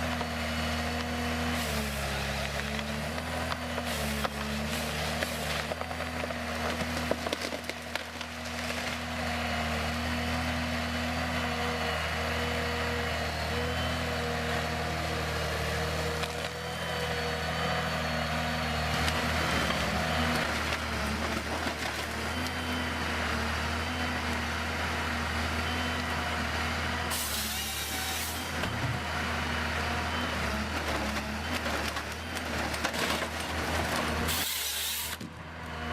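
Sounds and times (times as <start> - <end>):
wood-working machine whining: 26.1 - 35.9.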